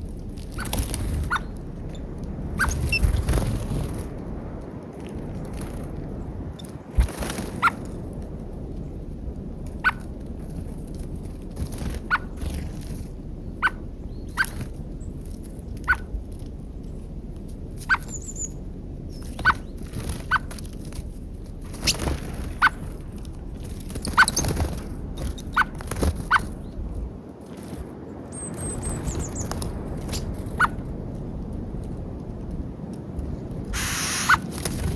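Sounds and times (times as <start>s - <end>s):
high bird chirp: 17.8s - 20.5s
birds pecking at peanuts: 31.6s - 34.9s.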